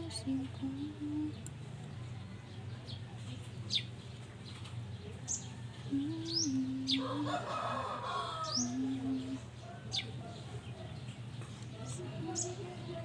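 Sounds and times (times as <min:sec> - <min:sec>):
steady low hum: 0:00.0 - 0:02.4, 0:05.5 - 0:10.3
small birds chirping: 0:00.0 - 0:07.4, 0:08.0 - 0:13.0
rooster crowing: 0:06.9 - 0:09.0.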